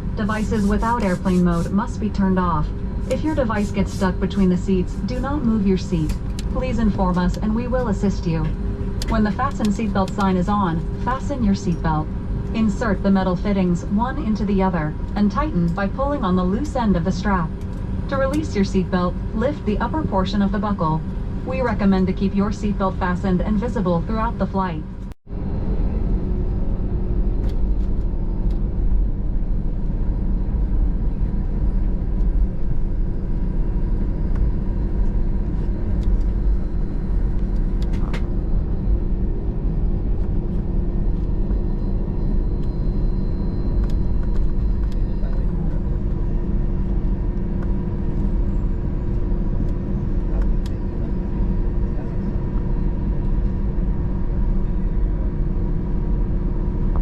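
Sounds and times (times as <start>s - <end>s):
jet engines idling rumble: 0.0s - 57.0s
steady cabin hum: 0.0s - 57.0s.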